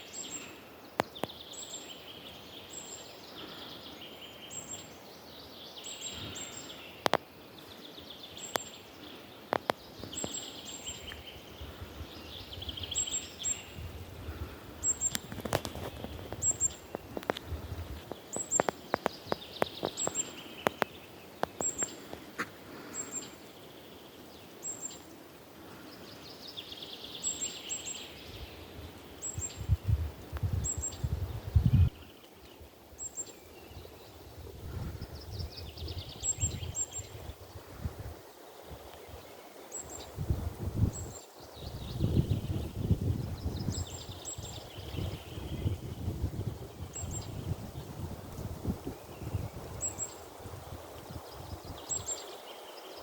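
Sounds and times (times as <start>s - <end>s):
birdsong bursts: 0.0s - 29.9s.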